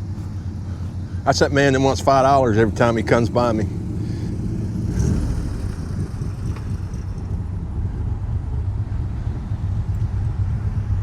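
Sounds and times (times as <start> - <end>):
car engine running: 0.0 - 11.0
wind noise on microphone: 4.8 - 11.0.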